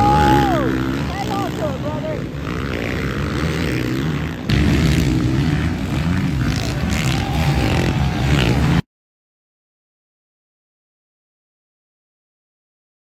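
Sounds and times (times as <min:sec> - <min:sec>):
motocross bike engines racing: 0:00.0 - 0:08.8.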